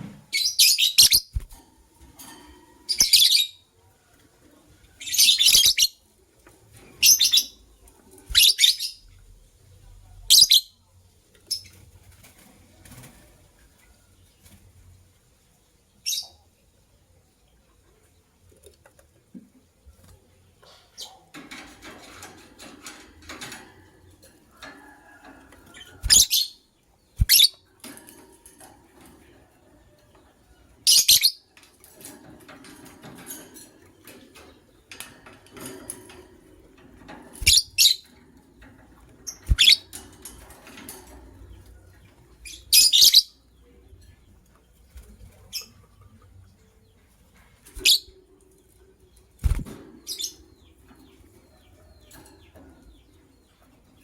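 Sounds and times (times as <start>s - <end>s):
wings fluttering: 0.0s - 3.2s, 8.2s - 8.8s, 24.7s - 26.5s, 27.2s - 27.6s, 37.1s - 38.0s, 39.2s - 41.3s, 49.4s - 50.4s
lovebirds chirping shrilly: 0.4s - 1.4s, 8.3s - 9.0s, 26.0s - 26.6s, 27.2s - 27.6s, 37.4s - 38.0s, 39.3s - 39.9s.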